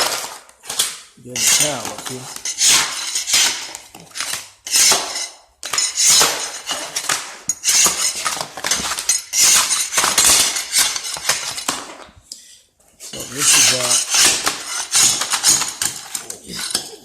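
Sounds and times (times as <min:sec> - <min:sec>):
tiles being scraped up: 0:00.0 - 0:12.0, 0:13.0 - 0:17.0
tiles clinking and clattering: 0:00.0 - 0:12.2, 0:13.0 - 0:17.0.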